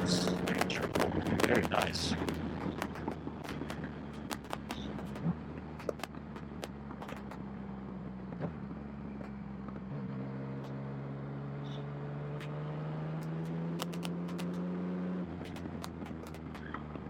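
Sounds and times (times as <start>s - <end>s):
motorcycle engine running: 0.0s - 17.0s
short clicks: 13.2s - 14.6s.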